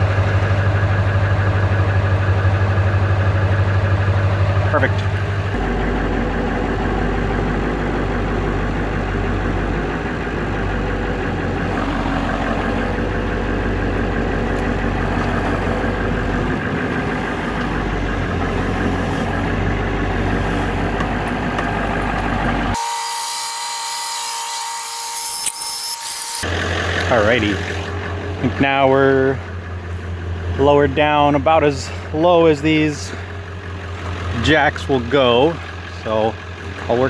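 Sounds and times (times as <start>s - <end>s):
motor drone: 0.0s - 28.6s.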